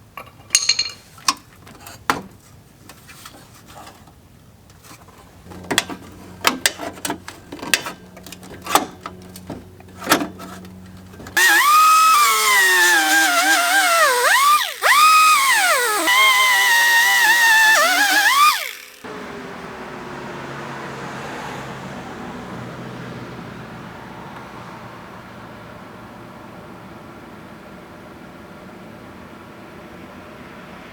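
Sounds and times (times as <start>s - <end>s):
metal knocks and taps: 0.2s - 1.4s
power tool grinding metal: 11.4s - 19.1s.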